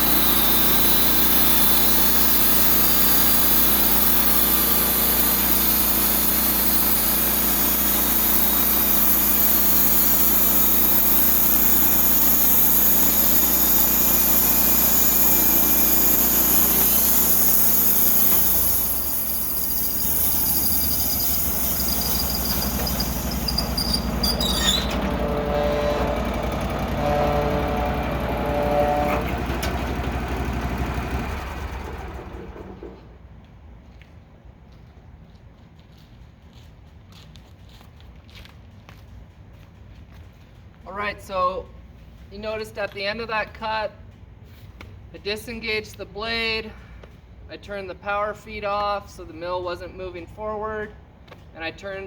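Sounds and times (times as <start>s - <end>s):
high whine: 0.0s - 31.3s
bandsaw blade cutting log: 0.0s - 33.0s
engine running steadily: 0.0s - 33.2s.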